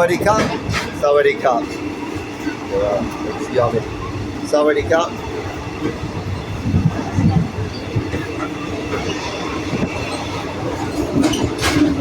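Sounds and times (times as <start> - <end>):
train wheels rumbling on track: 0.0 - 12.0
knocks and clatters: 8.0 - 12.0.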